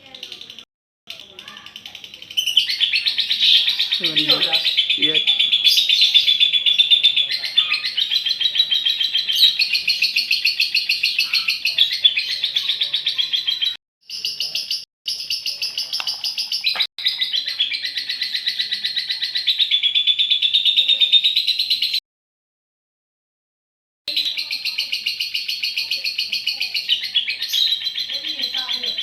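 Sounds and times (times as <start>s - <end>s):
lovebird chattering trill: 0.0s - 22.0s, 24.1s - 29.0s.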